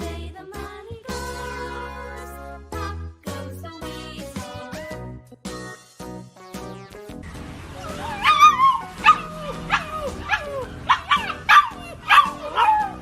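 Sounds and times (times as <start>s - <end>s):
puppy yipping: 7.8s - 13.0s.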